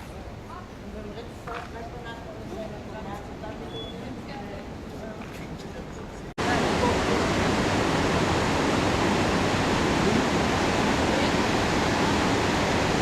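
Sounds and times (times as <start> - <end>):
waterfall roaring: 6.4 - 13.0.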